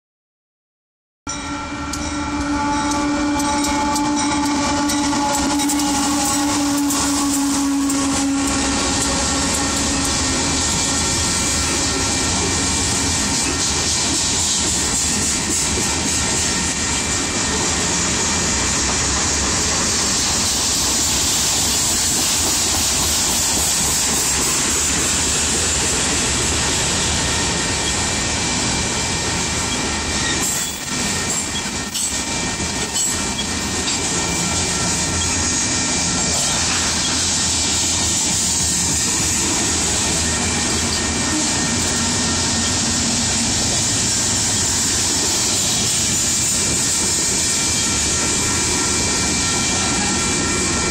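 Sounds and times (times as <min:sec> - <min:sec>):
freight train rumbling past: 0:01.3 - 0:50.9
wheel squeal: 0:29.6 - 0:35.6.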